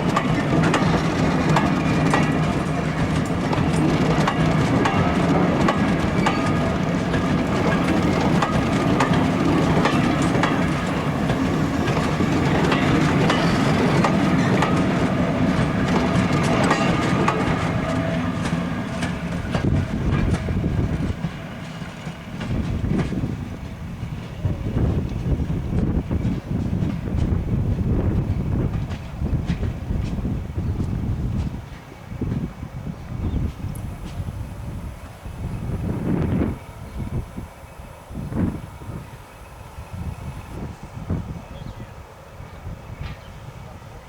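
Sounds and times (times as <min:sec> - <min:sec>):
train wheels clattering: 0:00.0 - 0:32.5.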